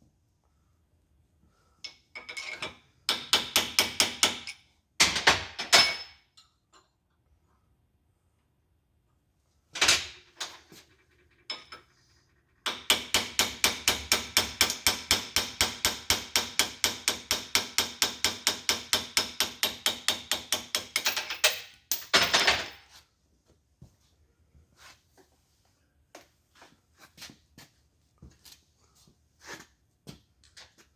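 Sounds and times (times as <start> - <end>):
hammer tapping on metal: 3.1 - 4.6.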